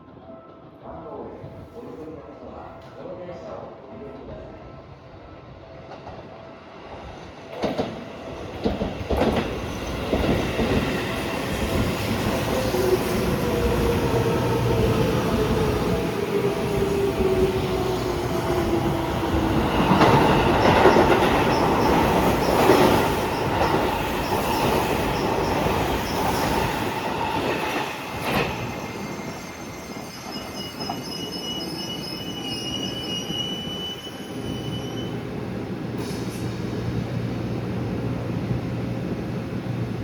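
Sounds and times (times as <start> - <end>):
high wheel squeal: 28.6 - 35.2.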